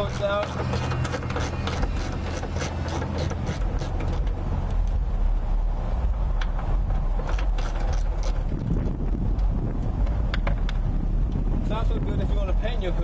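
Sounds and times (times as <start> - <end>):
ratchet wrench clicking: 0.0 - 4.3
steady low rumble: 0.0 - 13.0.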